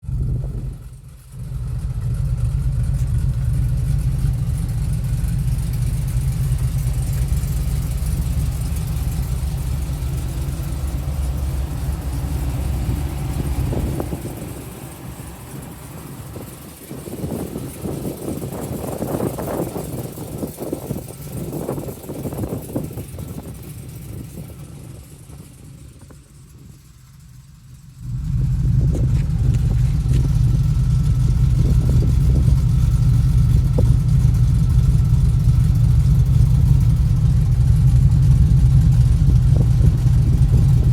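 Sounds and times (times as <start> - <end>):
engine rumbling: 0.0 - 40.9.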